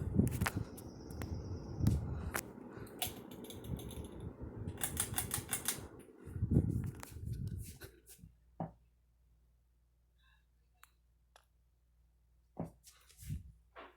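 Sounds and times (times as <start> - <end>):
sharp clicks: 4.8 - 5.9.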